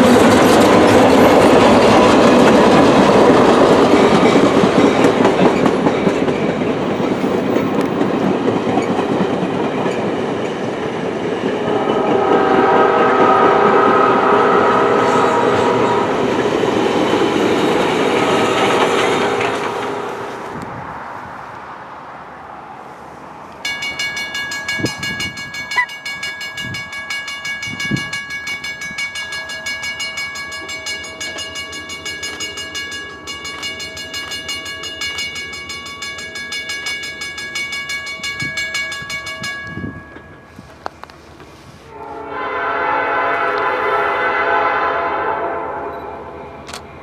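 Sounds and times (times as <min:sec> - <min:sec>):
train noise: 0:00.0 - 0:47.0
train chime whistle: 0:11.5 - 0:16.4, 0:17.0 - 0:20.5, 0:23.7 - 0:36.3, 0:41.9 - 0:46.4.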